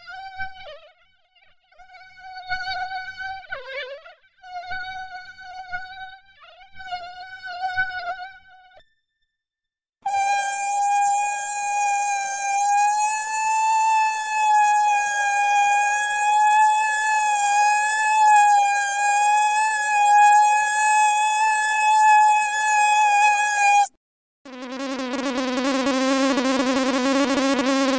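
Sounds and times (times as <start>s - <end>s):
mosquito whining buzz: 10.1s - 23.9s, 24.5s - 27.9s.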